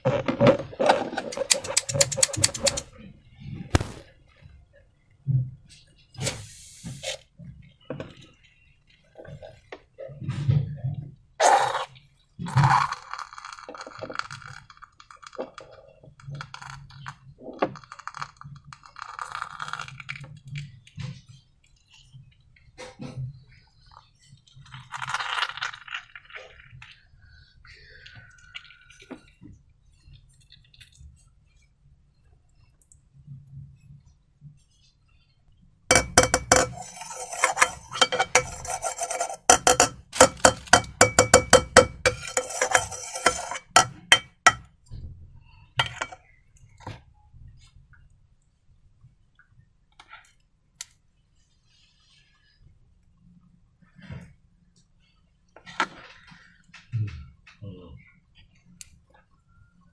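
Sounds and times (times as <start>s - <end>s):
handling and scraping: 0.0s - 2.9s, 3.7s - 4.1s, 35.9s - 44.6s, 45.8s - 46.2s.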